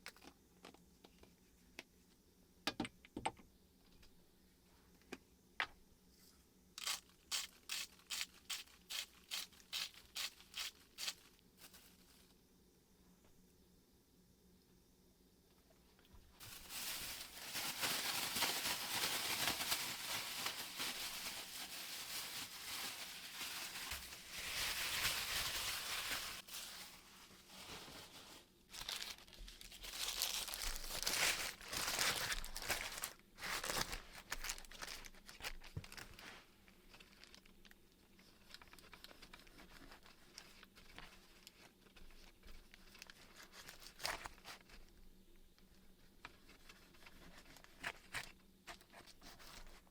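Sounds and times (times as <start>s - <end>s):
faint low hum: 0.0s - 49.9s
rustling crinkling handling: 6.8s - 12.4s, 16.4s - 45.0s, 45.6s - 49.9s.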